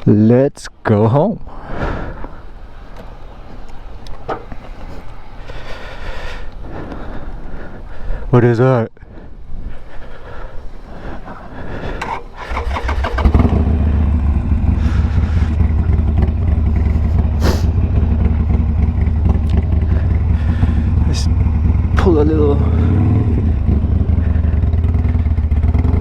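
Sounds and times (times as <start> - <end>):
motorcycle engine running: 12.4 - 26.0.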